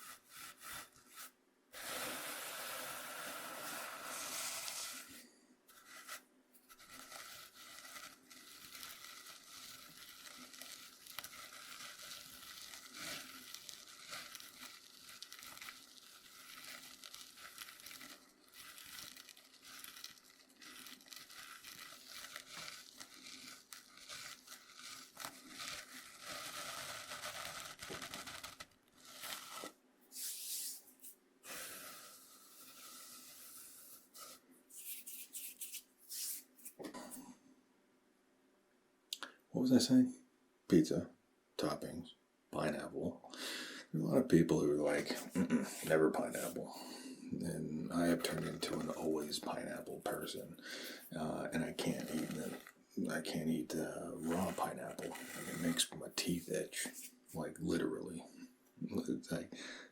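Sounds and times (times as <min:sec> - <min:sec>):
cornmeal scraped on cutting board: 0:00.0 - 0:37.2, 0:47.8 - 0:57.4.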